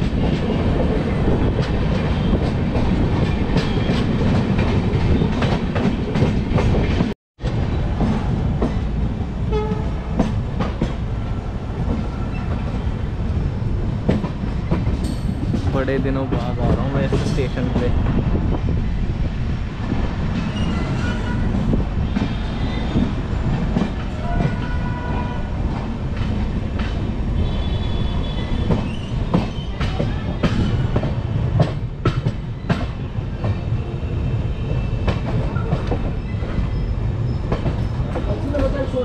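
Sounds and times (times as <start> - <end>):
wheels clacking over rail joints: 34.5 - 39.0.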